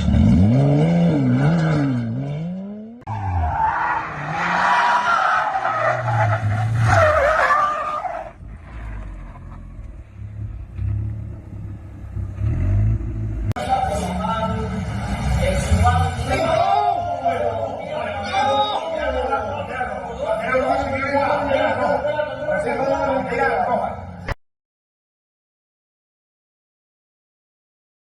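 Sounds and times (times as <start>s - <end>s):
car engine at unsteady revs: 0.0s - 3.0s
car engine revving: 0.0s - 16.6s
tyres squealing: 3.1s - 8.4s.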